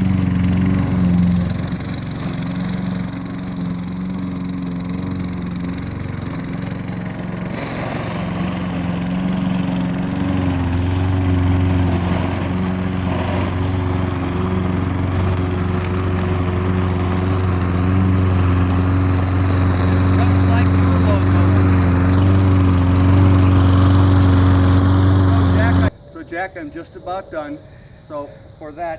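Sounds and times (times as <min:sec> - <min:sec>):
lawn mower engine running: 0:00.0 - 0:26.0.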